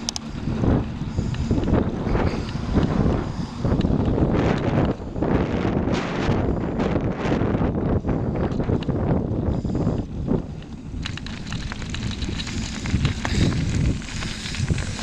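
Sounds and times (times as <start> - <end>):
crackles and clicks: 0.0 - 0.5, 9.6 - 15.0
wind buffeting microphone: 0.0 - 15.0.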